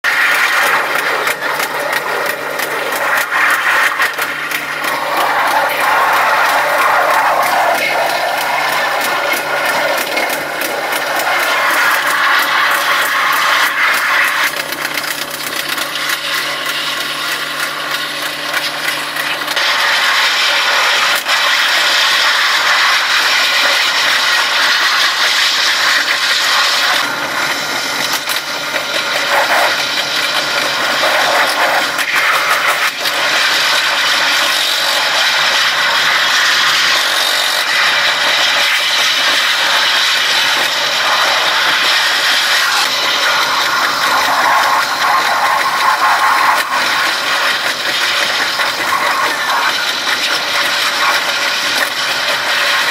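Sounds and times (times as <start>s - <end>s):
train engine: 0.0s - 52.9s
steady hum: 0.1s - 23.2s.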